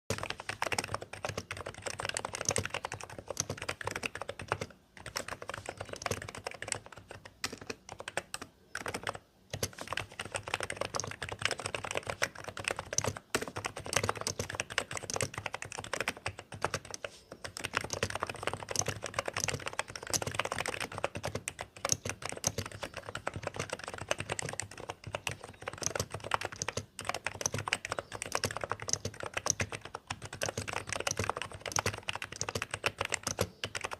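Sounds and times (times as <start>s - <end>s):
keyboard typing: 0.1s - 33.9s.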